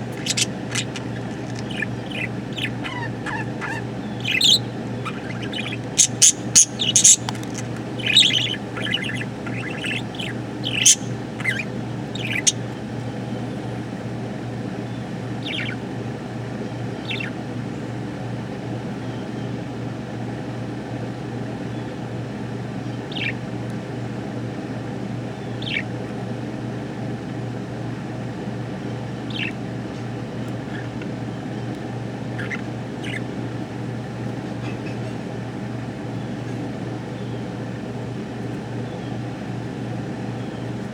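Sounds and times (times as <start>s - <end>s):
budgerigar chirping and squawking: 0.0s - 13.6s, 14.8s - 15.9s, 17.0s - 17.4s, 22.8s - 23.4s, 25.4s - 26.0s, 29.1s - 33.7s
steady low hum: 0.0s - 40.9s.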